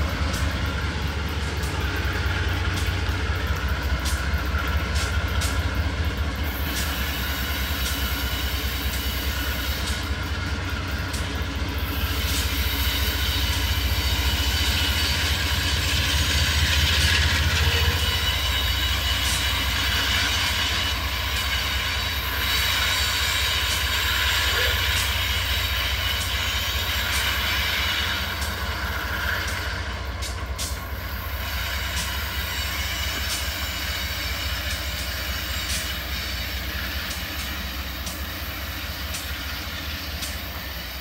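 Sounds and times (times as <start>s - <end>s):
wheel clicks over rail joints: 0.0s - 11.6s, 23.6s - 31.1s
locomotive engine humming: 0.0s - 41.0s.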